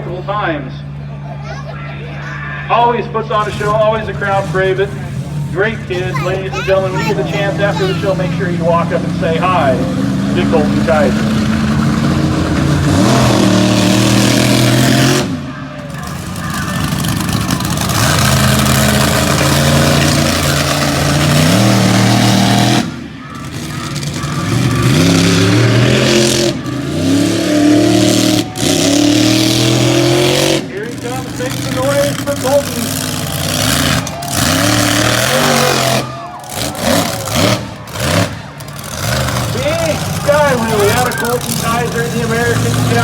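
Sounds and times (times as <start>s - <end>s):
truck engine running hard: 0.0s - 43.0s.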